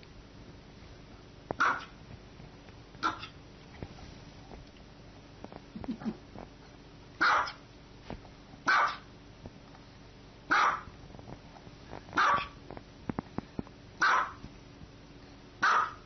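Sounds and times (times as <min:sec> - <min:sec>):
dog barking: 0:01.6 - 0:02.0, 0:03.0 - 0:03.4, 0:07.2 - 0:07.6, 0:08.7 - 0:09.1, 0:10.5 - 0:10.9, 0:12.2 - 0:12.6, 0:14.0 - 0:14.4, 0:15.6 - 0:16.0.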